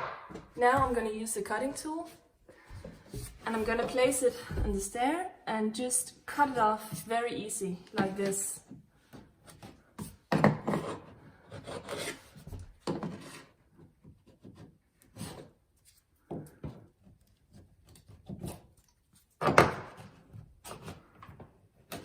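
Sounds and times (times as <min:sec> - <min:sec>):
chisel scraping wood: 0:10.6 - 0:13.6.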